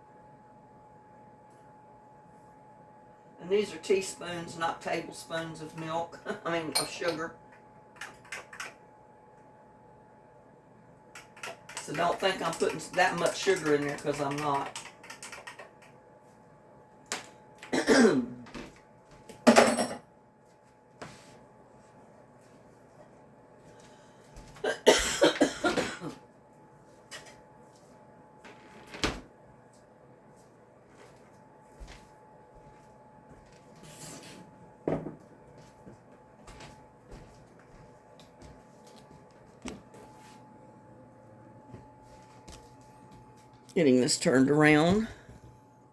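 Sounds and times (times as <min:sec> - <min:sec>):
faint steady hum: 0:00.0 - 0:45.9
woman coughing: 0:17.7 - 0:18.4, 0:24.6 - 0:26.2.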